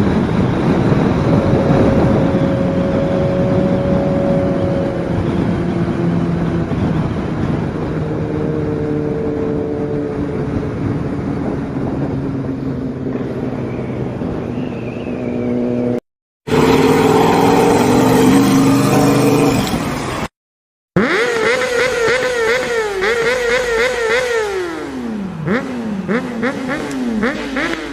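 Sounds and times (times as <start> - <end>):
motorcycle engine running: 21.0 - 27.9.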